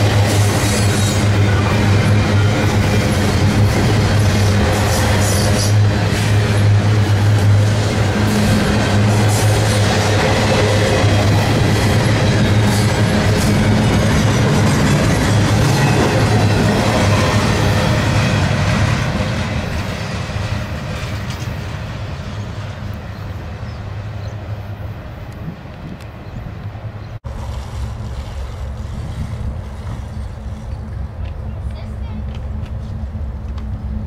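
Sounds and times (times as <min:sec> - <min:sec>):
train cars rolling on rails: 0:00.0 - 0:34.0.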